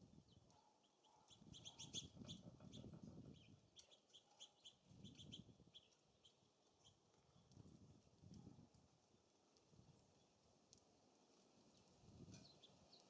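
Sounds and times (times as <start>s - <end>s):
small birds chirping: 0.0s - 7.7s, 11.6s - 13.0s
wind rumble on microphone: 1.4s - 3.7s, 4.9s - 5.8s, 7.4s - 8.8s, 12.0s - 12.6s.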